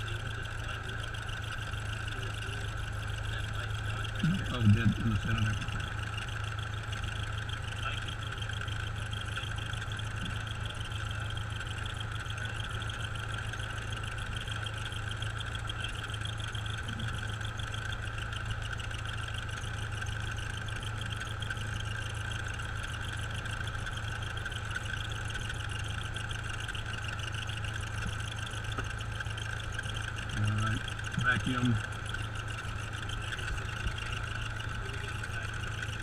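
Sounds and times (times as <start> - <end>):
aircraft piston engine and propeller: 0.0 - 36.0.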